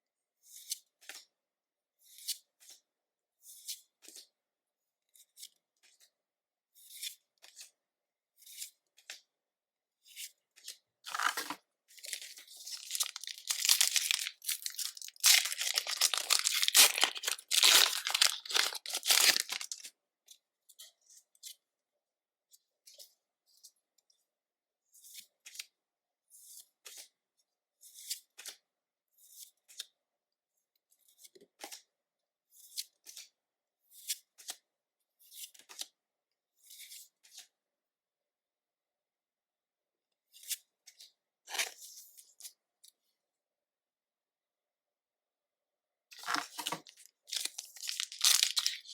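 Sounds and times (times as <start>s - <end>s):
foil wrapper tearing: 11.1s - 19.8s, 46.2s - 48.9s
cards being handled: 11.1s - 19.9s, 46.2s - 48.9s.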